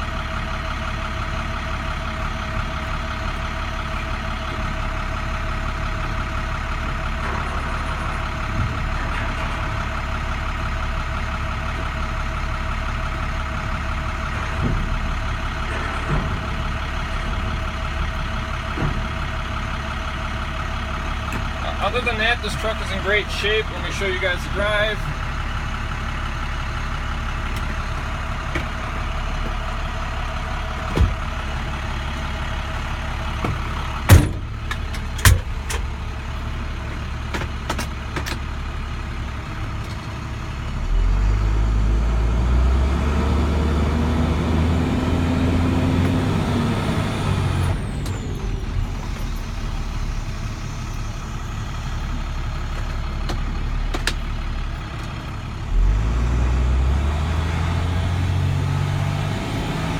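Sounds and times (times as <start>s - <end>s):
diesel engine revving: 0.0s - 59.9s
sharp engine knocks: 14.4s - 19.3s, 30.7s - 31.9s, 32.9s - 36.3s.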